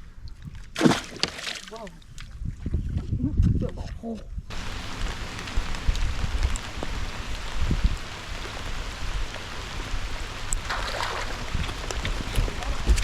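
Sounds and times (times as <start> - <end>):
low rumbling bumps: 2.4 - 13.0
rain falling: 4.5 - 13.0.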